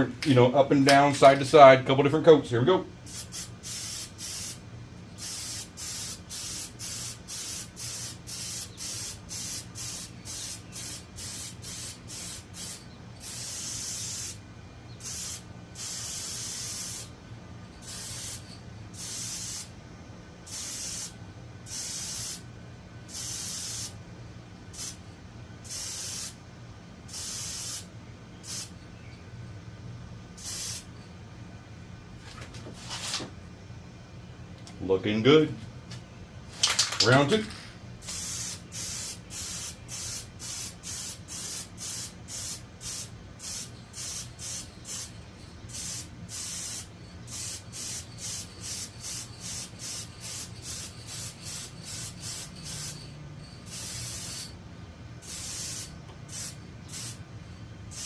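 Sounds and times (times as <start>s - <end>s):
aerosol can spraying: 3.1s - 4.6s, 5.2s - 14.4s, 15.0s - 17.1s, 17.8s - 19.7s, 38.0s - 45.1s, 45.7s - 53.0s, 53.7s - 54.5s, 55.2s - 57.2s.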